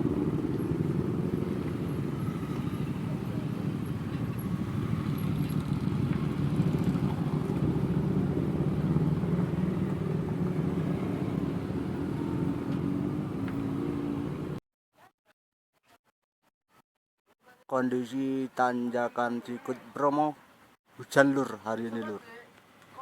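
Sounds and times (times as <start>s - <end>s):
vehicle engine running: 0.0s - 14.6s.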